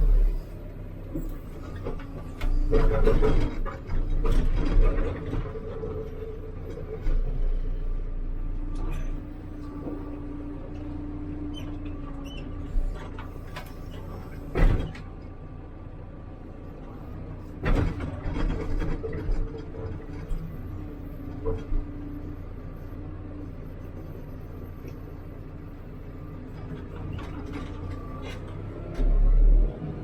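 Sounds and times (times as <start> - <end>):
diesel engine running: 0.0 - 30.0
metal clunks and knocks: 1.6 - 6.0, 14.4 - 15.1, 17.6 - 20.4.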